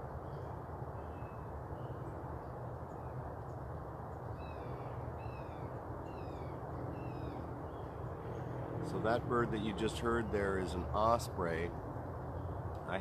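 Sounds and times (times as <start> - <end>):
osprey calling: 4.4 - 7.8.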